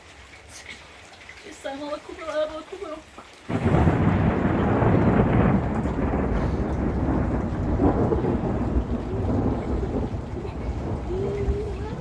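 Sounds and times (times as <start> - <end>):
heavy rain: 0.0 - 12.0
thunder rumbling: 3.5 - 12.0.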